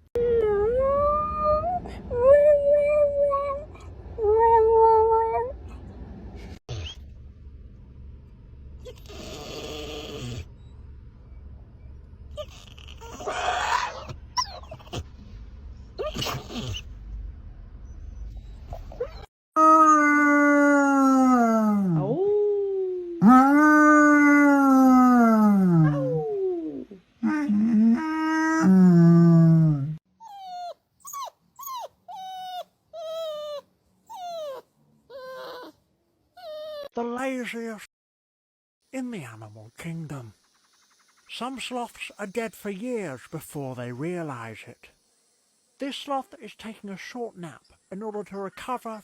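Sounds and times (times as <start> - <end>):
dog whining: 0.2 - 5.9, 8.8 - 10.5, 12.4 - 15.1, 16.0 - 16.9, 18.2 - 20.1, 25.7 - 28.7, 30.2 - 35.8, 36.4 - 37.0
low steady hum: 0.2 - 9.1, 10.4 - 12.4
dog howling: 23.2 - 35.8.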